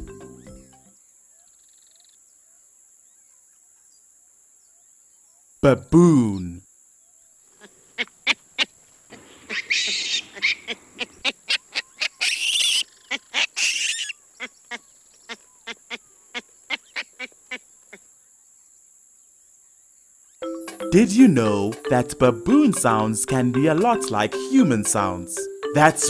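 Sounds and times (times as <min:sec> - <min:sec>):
rough baboon calls: 0:07.6 - 0:18.0.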